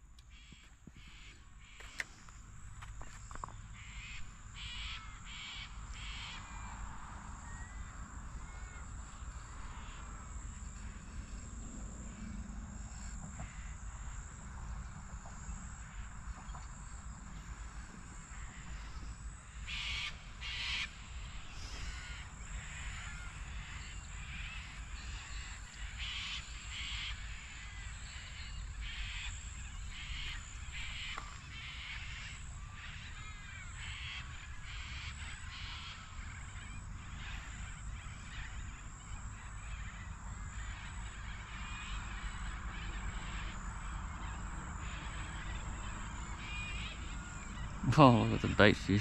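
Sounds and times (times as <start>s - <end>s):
small birds chirping: 0.2s - 6.4s
harsh bird calls: 15.5s - 49.0s.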